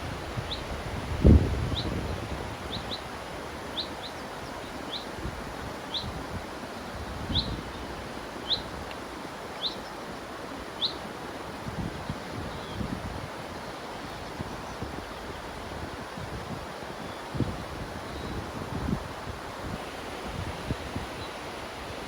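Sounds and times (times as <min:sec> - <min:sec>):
river rushing: 0:13.2 - 0:22.0.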